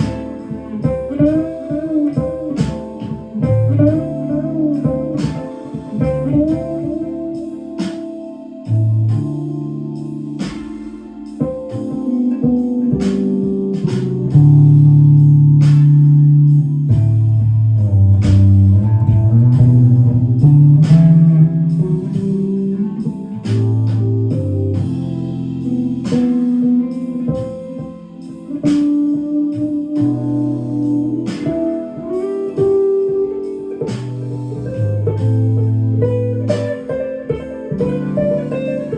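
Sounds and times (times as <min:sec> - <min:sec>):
clean electric guitar melody: 0:00.0 - 0:38.9.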